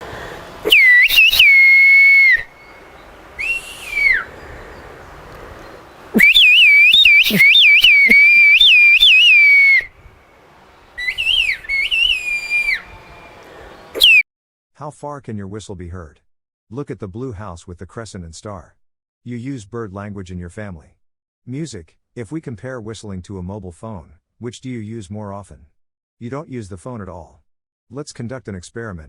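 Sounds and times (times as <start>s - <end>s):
person whistling high phrases: 0.7s - 2.6s, 3.4s - 4.3s, 6.2s - 9.9s, 11.0s - 12.9s, 14.0s - 14.2s.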